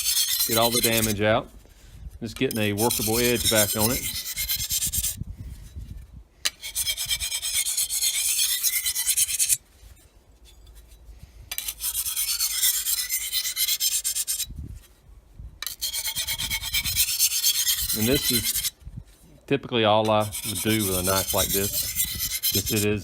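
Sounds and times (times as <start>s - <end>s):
sharpener rasping on knife edge: 0.0s - 1.2s, 2.5s - 5.2s, 15.6s - 18.7s, 20.1s - 23.0s.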